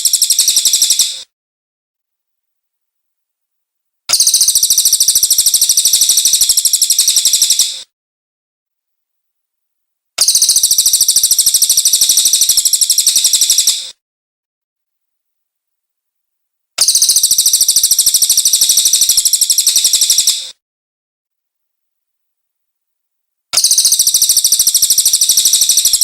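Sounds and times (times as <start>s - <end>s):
bird trilling: 23.6s - 26.0s.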